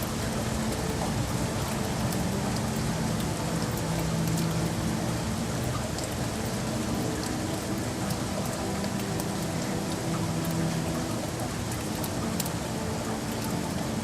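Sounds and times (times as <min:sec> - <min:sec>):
rain falling on city surfaces: 0:00.0 - 0:14.0.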